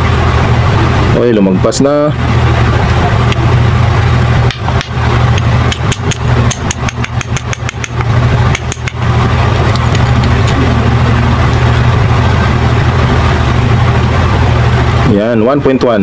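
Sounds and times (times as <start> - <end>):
steady low drone: 0.0 - 16.0
quick light metal taps: 4.8 - 9.0.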